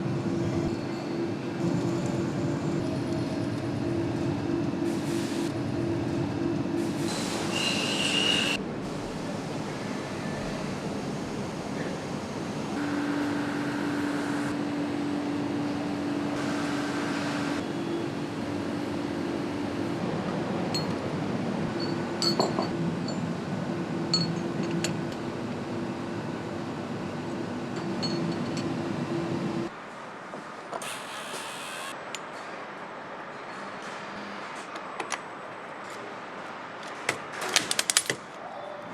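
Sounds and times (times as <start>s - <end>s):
machinery hum and rumble: 0.0s - 7.6s, 8.4s - 29.7s.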